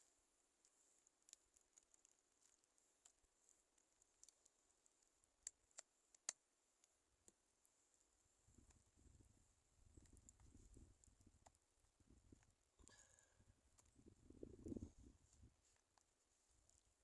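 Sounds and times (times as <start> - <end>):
faint light clicks: 0.6 - 7.4.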